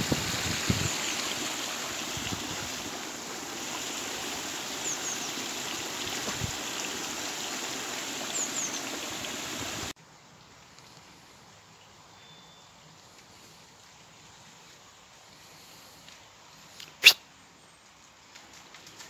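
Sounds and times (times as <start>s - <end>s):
running water rushing: 0.0s - 10.0s.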